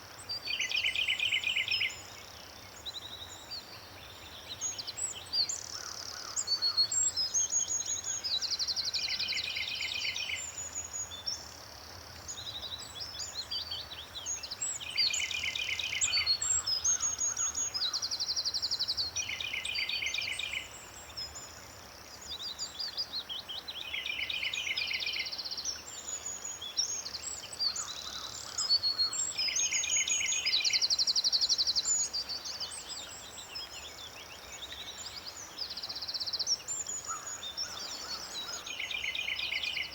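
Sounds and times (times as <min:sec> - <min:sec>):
songbird trills: 0:12.2 - 0:39.9.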